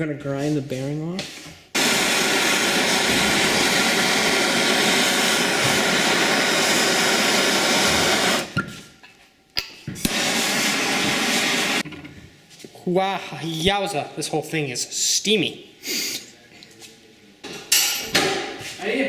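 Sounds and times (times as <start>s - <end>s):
grinder grinding metal: 1.8s - 8.6s.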